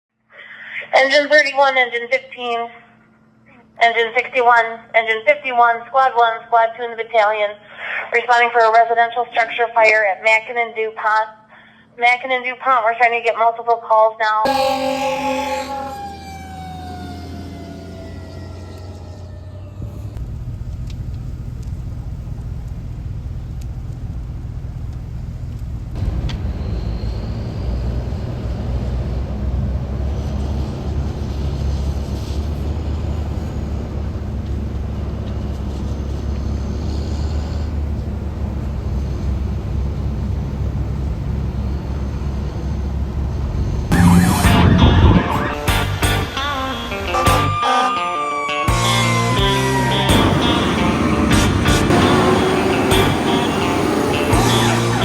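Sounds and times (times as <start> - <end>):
loud multi-tone siren sounds: 14.5 - 20.0, 43.9 - 55.0
fire truck engine rumble: 14.5 - 47.6, 48.3 - 55.0.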